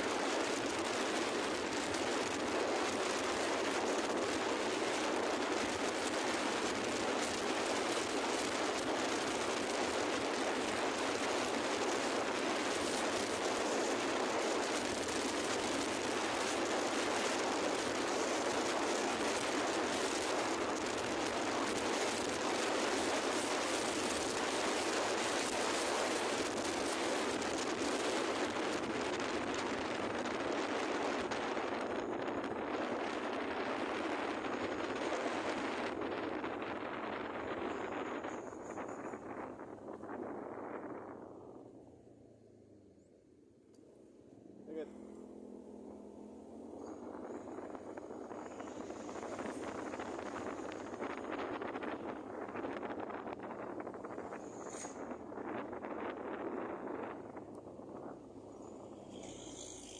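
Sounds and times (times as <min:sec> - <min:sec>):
wind: 0:00.0 - 0:59.9
boat engine: 0:44.4 - 0:54.7.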